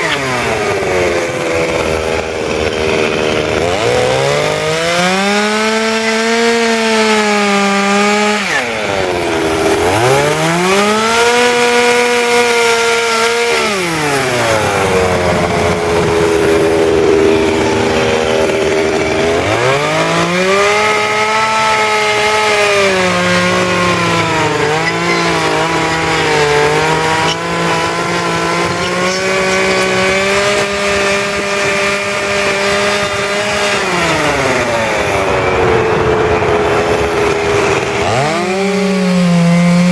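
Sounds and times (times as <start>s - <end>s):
chainsaw revving and cutting wood: 0.0s - 39.9s.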